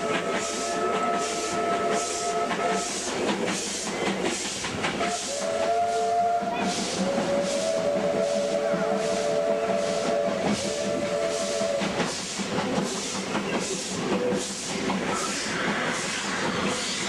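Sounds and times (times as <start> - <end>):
steam whistle blasts: 0.0 - 3.8, 5.0 - 12.2
steam locomotive exhaust beats: 0.0 - 17.0.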